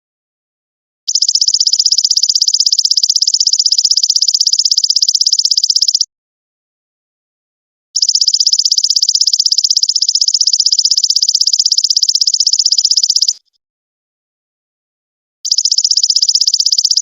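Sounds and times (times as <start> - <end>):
insect pulsing trill: 1.1 - 6.1, 8.0 - 13.4, 15.5 - 17.0.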